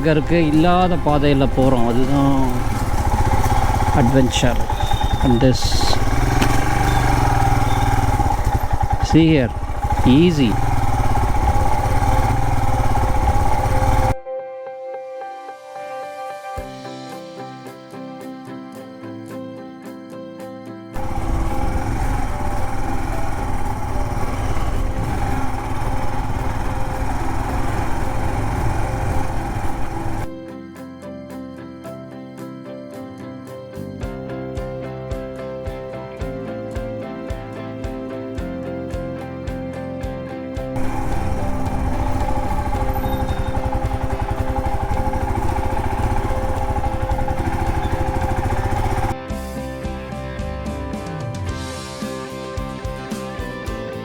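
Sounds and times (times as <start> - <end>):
motorcycle engine chugging: 0.0 - 14.3, 21.0 - 30.4, 40.8 - 49.2.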